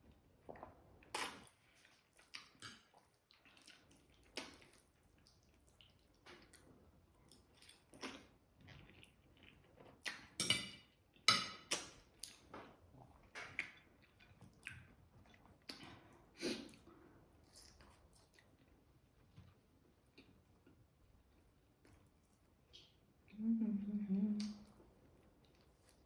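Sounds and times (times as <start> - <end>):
person chewing food: 0.4 - 16.8.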